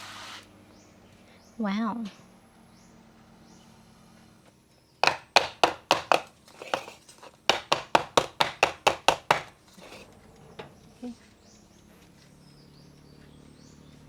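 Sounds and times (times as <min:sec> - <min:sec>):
sharp taps: 0:05.0 - 0:10.0.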